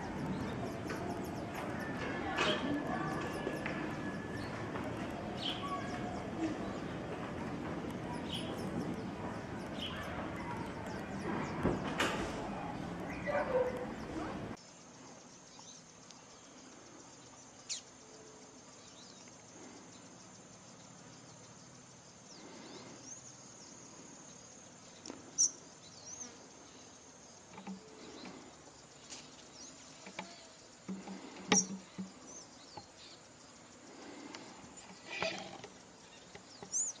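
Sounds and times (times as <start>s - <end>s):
insect buzz: 0.0s - 37.0s.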